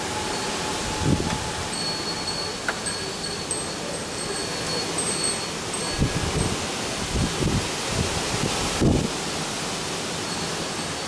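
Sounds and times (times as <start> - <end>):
wind buffeting microphone: 0.0 - 1.8, 5.9 - 9.4
steady rain falling: 0.0 - 11.0.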